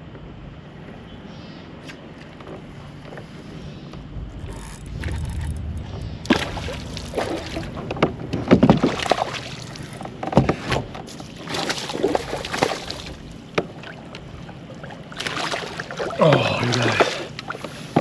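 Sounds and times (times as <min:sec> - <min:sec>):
knocks and rustles in kayak: 0:01.9 - 0:18.0
short water splashes: 0:04.3 - 0:18.0.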